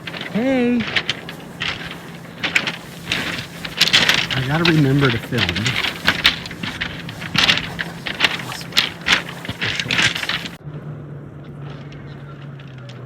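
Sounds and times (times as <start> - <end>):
footsteps crunching on pebbles: 0.0 - 10.6
steady low hum: 0.0 - 10.6.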